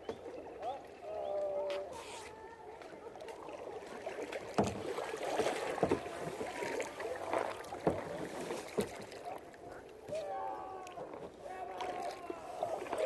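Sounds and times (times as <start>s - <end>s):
paddle splashing in water: 0.0s - 13.0s.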